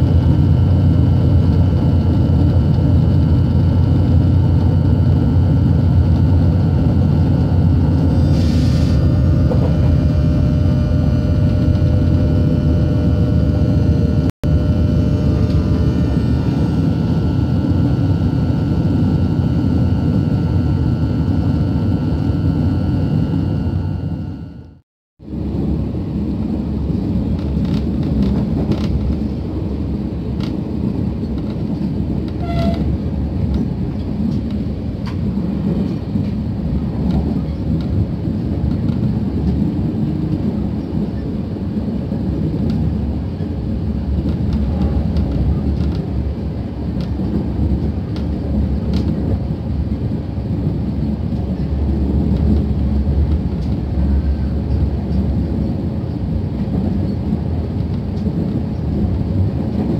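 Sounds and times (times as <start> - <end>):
train rumbling inside carriage: 0.0 - 59.9.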